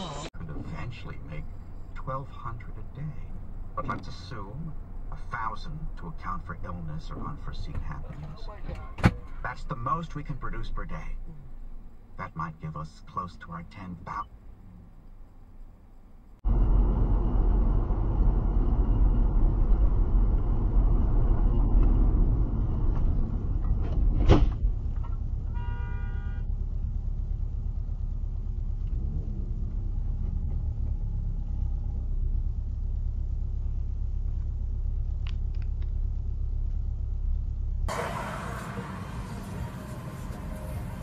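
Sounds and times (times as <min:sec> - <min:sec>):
car rumbling on road: 0:00.0 - 0:41.0
car horn: 0:25.5 - 0:26.5.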